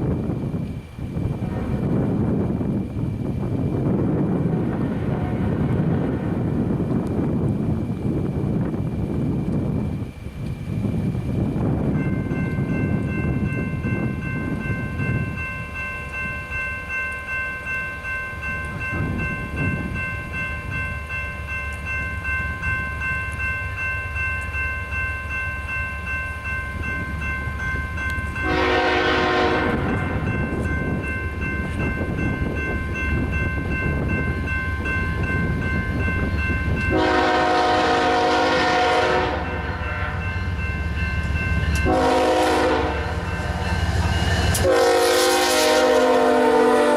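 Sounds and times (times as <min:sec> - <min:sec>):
freight train rumbling: 0:00.0 - 0:46.9
locomotive air horn blasts: 0:04.5 - 0:06.4, 0:28.4 - 0:30.2, 0:36.9 - 0:40.2, 0:41.8 - 0:43.3, 0:44.4 - 0:46.9
high-pitched ringing tones: 0:09.8 - 0:37.5, 0:39.4 - 0:44.8.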